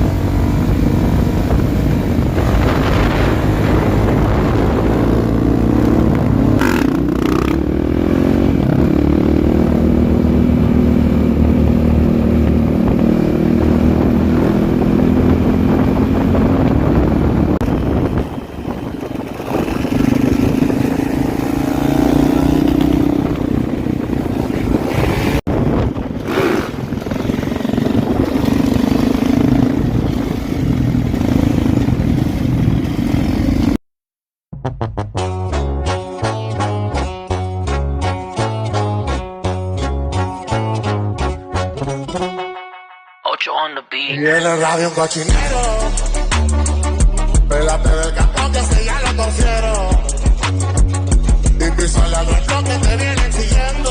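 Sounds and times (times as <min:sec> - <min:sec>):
dirt bike engine revving: 0:00.0 - 0:25.4, 0:26.1 - 0:33.8.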